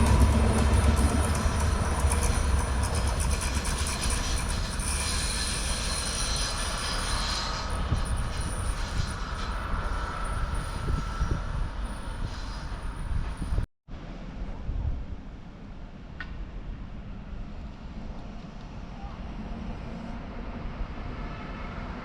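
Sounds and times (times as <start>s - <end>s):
train wheels on rails: 0.0s - 13.7s.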